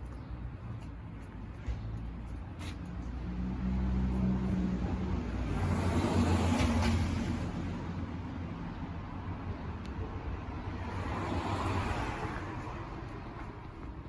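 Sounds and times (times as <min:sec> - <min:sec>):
motor vehicle passing by: 0:03.0 - 0:07.9.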